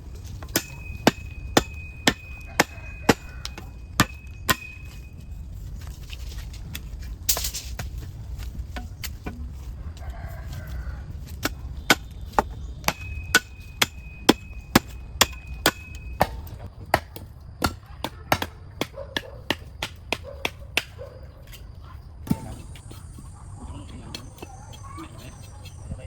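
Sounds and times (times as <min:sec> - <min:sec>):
tool chopping wood: 0:00.2 - 0:05.1, 0:11.2 - 0:21.6.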